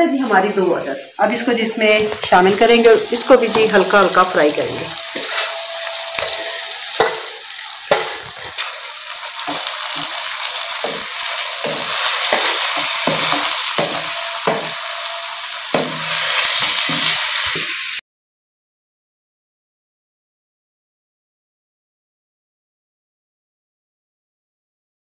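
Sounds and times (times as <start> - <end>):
vegetables sizzling in a pan: 0.0 - 18.0
spoon knocking against pan: 5.1 - 8.6, 9.4 - 15.0, 15.7 - 17.7.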